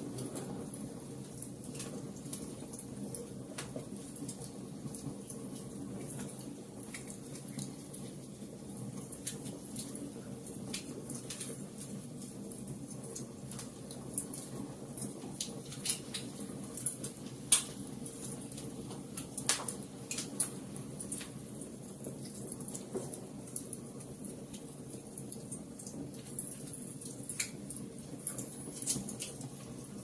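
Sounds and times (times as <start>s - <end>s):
low rumble of burning: 0.0s - 30.0s
wood fire crackling and popping: 0.0s - 30.0s.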